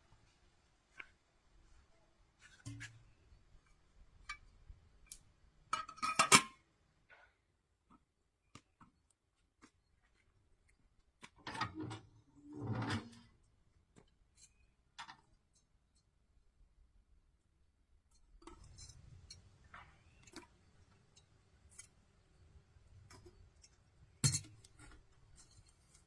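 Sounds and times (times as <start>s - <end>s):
utensils and dishes clinking: 24.2s - 24.6s.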